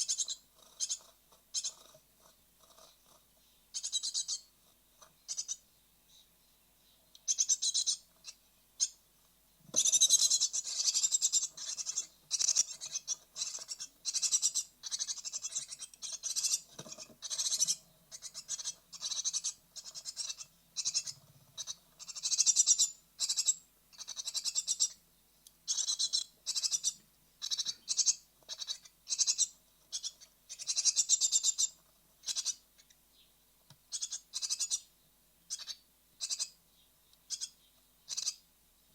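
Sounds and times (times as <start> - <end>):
nestlings hissing begging calls: 3.8 - 4.5, 7.3 - 9.0, 9.8 - 25.0, 25.7 - 32.6, 33.9 - 34.8, 35.5 - 36.6, 37.3 - 38.4.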